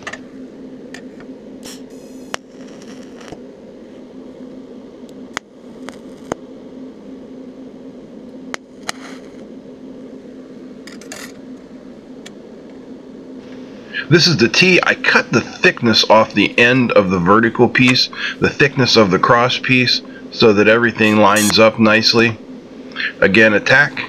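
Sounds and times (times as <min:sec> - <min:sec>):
welder humming: 0:00.0 - 0:24.0
hissing tack welds: 0:01.6 - 0:03.4.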